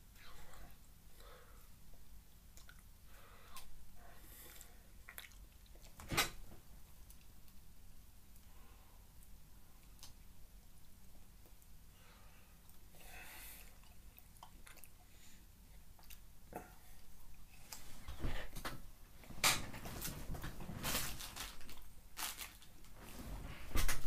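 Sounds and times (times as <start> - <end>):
mouth clicks and smacks: 2.5 - 2.9, 5.0 - 6.1, 13.7 - 15.0
person chewing ice cream bar: 2.5 - 2.9, 4.4 - 6.0, 13.6 - 17.7.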